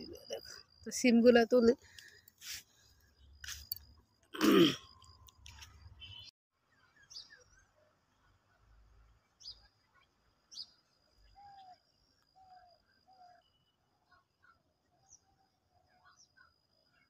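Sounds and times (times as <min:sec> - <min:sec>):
faint bird chirps: 0:04.9 - 0:17.0.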